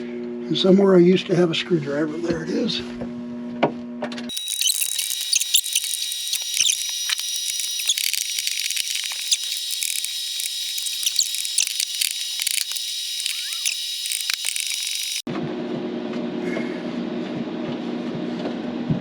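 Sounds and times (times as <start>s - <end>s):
screwdriver ratchet clicking: 4.3s - 15.3s.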